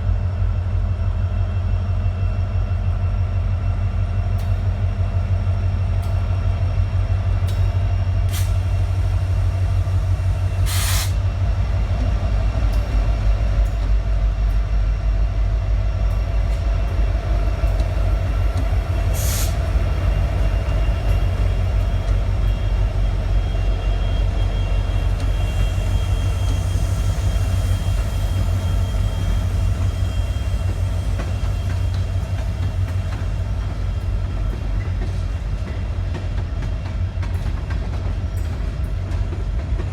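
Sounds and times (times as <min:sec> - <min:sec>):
train rumbling on rails: 0:00.0 - 0:39.9
short hisses: 0:10.7 - 0:11.2, 0:19.2 - 0:19.6.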